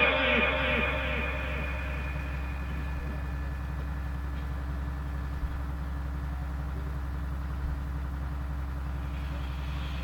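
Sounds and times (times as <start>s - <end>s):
low hum with faint hiss: 0.0s - 10.0s.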